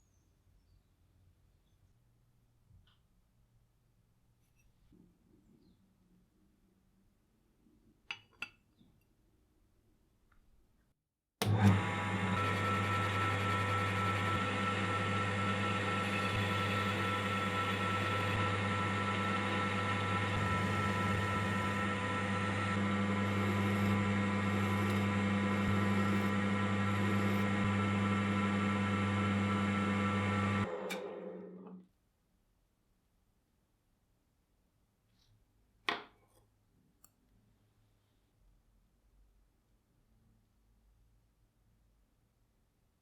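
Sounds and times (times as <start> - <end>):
electric workshop machine running: 11.4 - 31.8
machine winding down: 11.4 - 31.8.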